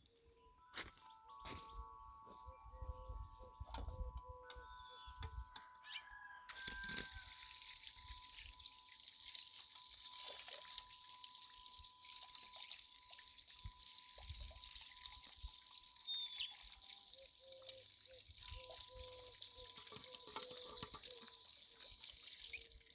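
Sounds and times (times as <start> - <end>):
water trickling: 6.5 - 22.9.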